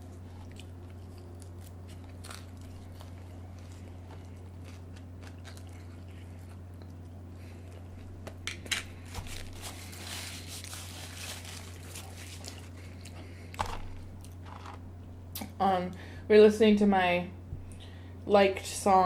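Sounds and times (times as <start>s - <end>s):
chewing: 0.0s - 8.4s
food crunching: 0.0s - 15.2s
steady low hum: 0.0s - 19.0s
food packaging rustling: 8.0s - 14.8s.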